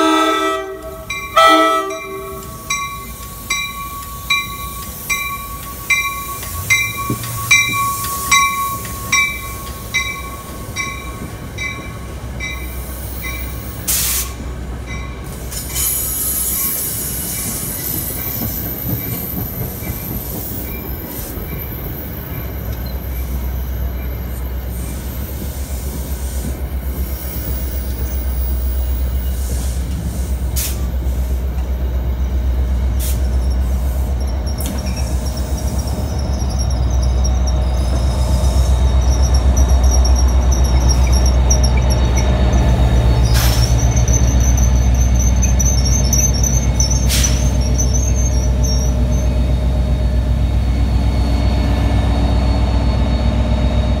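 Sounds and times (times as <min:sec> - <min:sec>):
train coaches rolling past: 0:00.0 - 0:54.0
high wheel squeal: 0:33.0 - 0:54.0.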